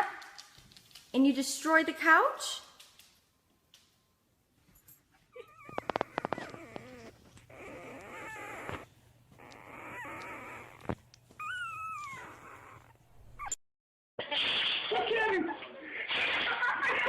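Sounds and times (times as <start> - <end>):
pet wavering vocal calls: 5.3 - 13.5.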